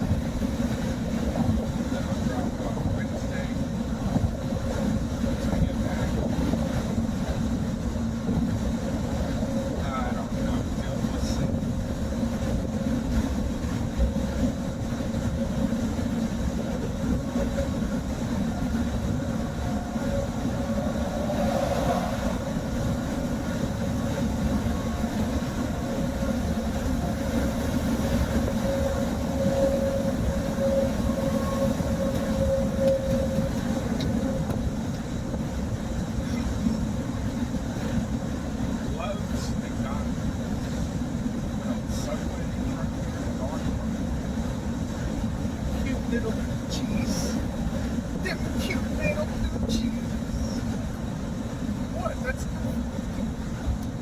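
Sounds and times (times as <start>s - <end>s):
car road and engine noise: 0.0s - 54.0s
faint whine: 8.9s - 40.9s.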